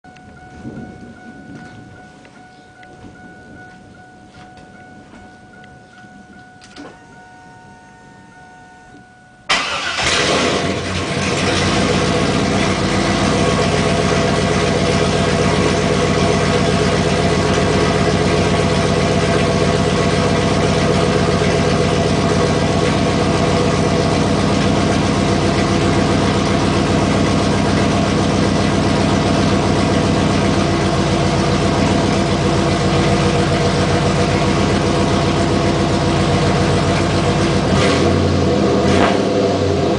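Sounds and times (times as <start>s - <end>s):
car engine starting and idling: 9.4s - 39.9s.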